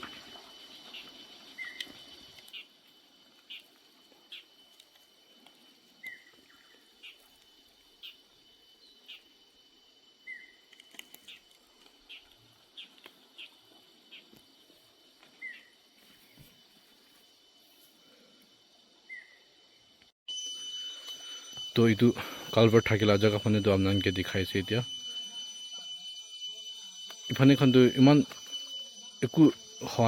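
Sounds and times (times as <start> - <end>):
birds chirping: 0.7 - 2.7
faint steady high tone: 13.3 - 30.0.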